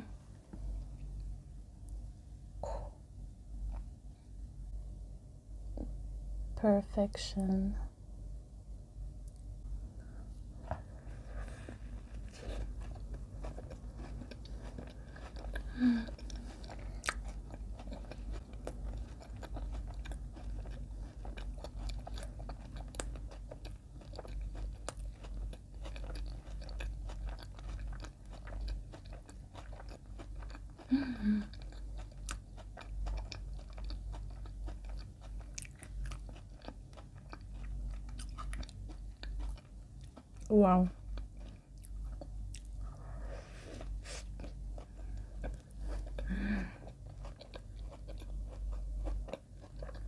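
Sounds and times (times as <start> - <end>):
wet chewing with crunches: 10.6 - 43.0, 43.7 - 50.0.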